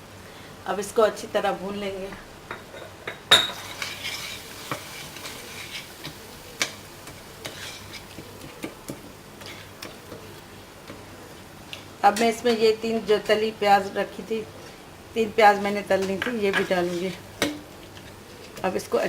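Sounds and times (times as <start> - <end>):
faint sizzle: 0.0 - 19.0
spoon stirring and scraping pan: 2.5 - 12.8, 15.4 - 18.7.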